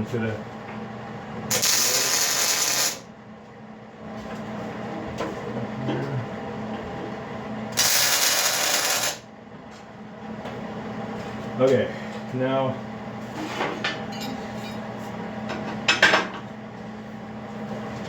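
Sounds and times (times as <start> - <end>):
crackling welding arc: 1.5 - 3.1, 7.8 - 9.2.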